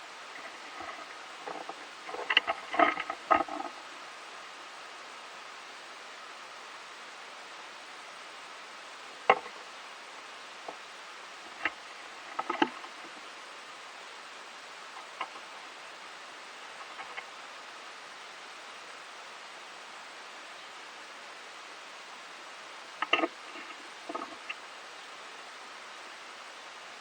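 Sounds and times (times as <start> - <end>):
steady hiss: 0.0 - 27.0
squirrel clicks and taps: 23.0 - 24.6.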